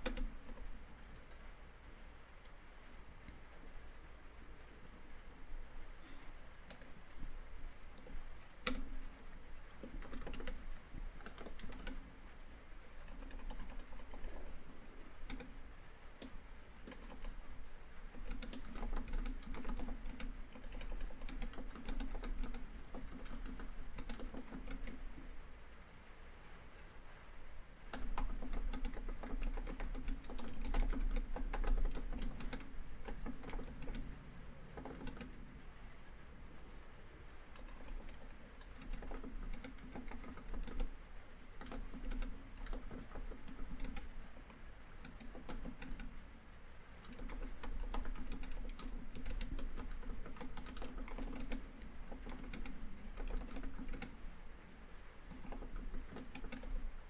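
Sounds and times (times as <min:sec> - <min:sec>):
laptop keyboard typing: 0:00.0 - 0:01.4, 0:06.0 - 0:25.3, 0:27.9 - 0:35.4, 0:37.3 - 0:46.3, 0:47.0 - 0:54.3, 0:55.2 - 0:57.0
rain on a tin roof: 0:35.2 - 0:37.6.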